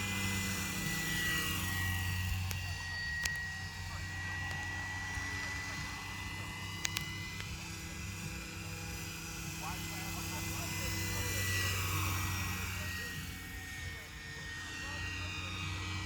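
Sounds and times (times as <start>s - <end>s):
model helicopter whine: 0.0s - 16.0s
sharp clicks: 6.7s - 7.6s.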